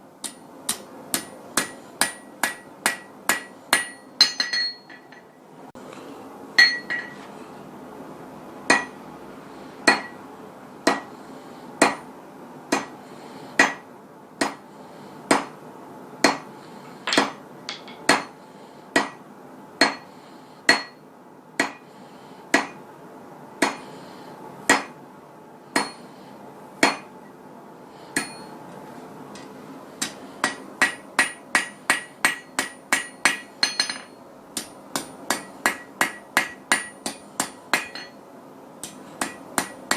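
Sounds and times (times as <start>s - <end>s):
hammer striking steel on anvil: 0.2s - 5.3s, 6.6s - 7.2s, 8.7s - 9.0s, 9.8s - 10.2s, 10.8s - 11.1s, 11.8s - 12.1s, 12.7s - 13.0s, 13.6s - 14.6s, 15.3s - 15.6s, 16.2s - 16.5s, 17.1s - 19.2s, 19.8s - 20.1s, 20.7s - 21.0s, 21.6s - 21.8s, 22.5s - 22.8s, 23.6s - 23.8s, 24.7s - 25.0s, 25.8s - 26.0s, 26.8s - 27.1s, 28.2s - 28.5s, 29.4s - 38.2s, 38.8s - 39.9s.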